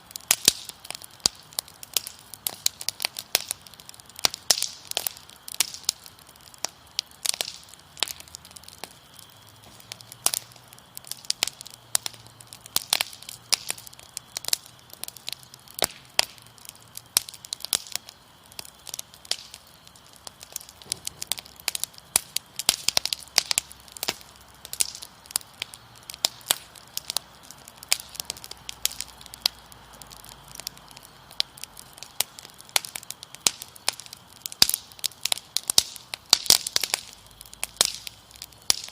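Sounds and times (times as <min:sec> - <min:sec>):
wood fire crackling and popping: 0:00.0 - 0:38.9
faint cricket trill: 0:00.1 - 0:38.9.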